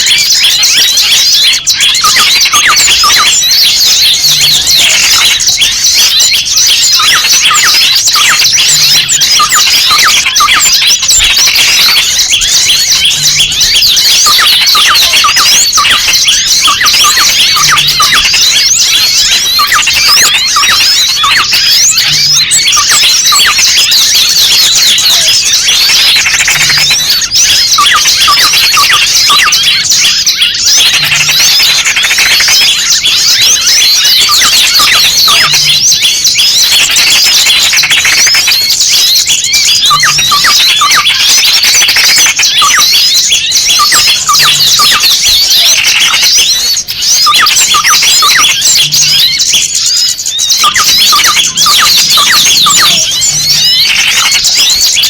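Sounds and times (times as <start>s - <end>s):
small birds chirping in alarm: 0.0s - 55.0s.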